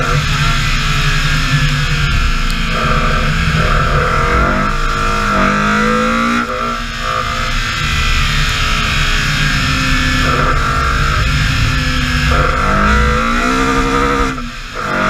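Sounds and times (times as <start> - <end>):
car engine revving under load: 0.0 - 15.0.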